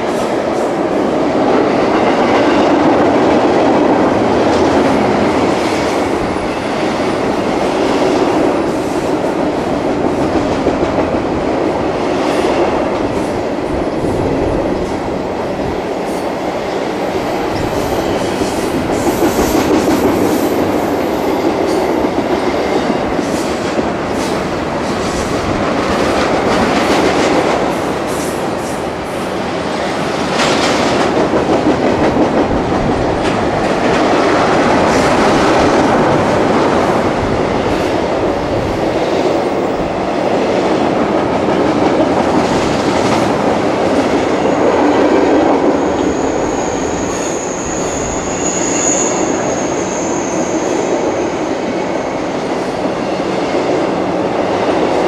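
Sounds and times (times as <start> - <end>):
freight train rumbling past: 0.0 - 55.0
high wheel squeal: 46.0 - 51.1.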